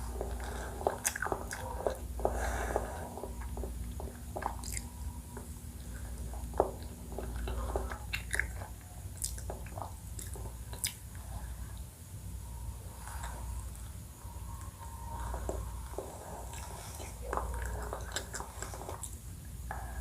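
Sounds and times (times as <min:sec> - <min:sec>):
wet chewing and mouth smacks: 0:00.0 - 0:11.2, 0:14.6 - 0:19.2.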